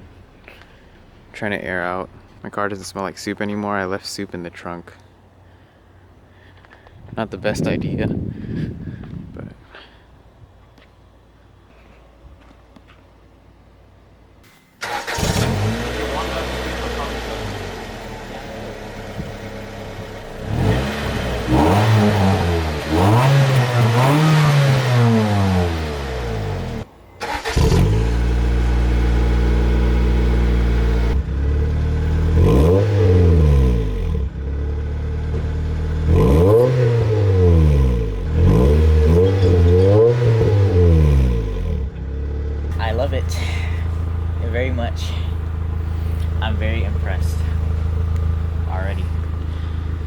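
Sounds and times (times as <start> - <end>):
car engine idling and revving: 14.8 - 50.0.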